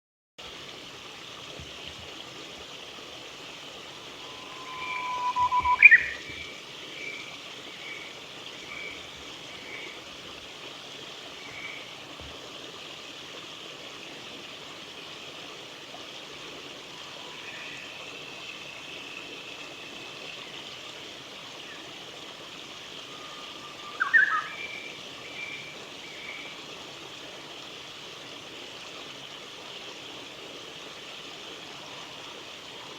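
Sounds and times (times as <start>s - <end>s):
bird singing whistled song: 4.2s - 6.5s, 23.2s - 25.6s.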